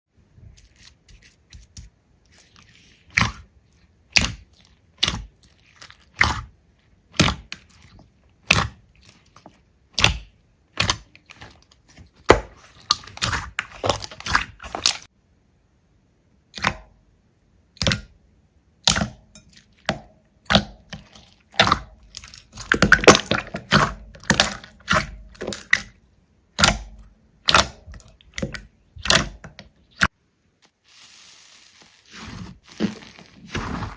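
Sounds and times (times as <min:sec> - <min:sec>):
slime crackling squishes: 0:02.3 - 0:15.1, 0:20.5 - 0:30.1.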